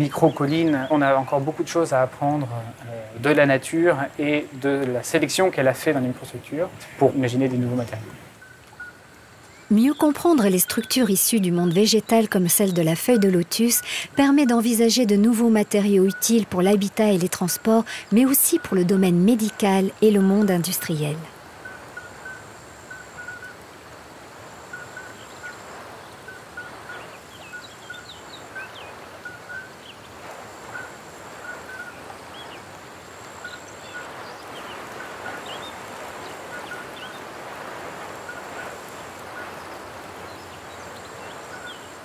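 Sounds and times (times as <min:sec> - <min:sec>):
steady background hiss: 0:00.0 - 0:42.0
bird calls: 0:24.7 - 0:37.6, 0:38.2 - 0:42.0.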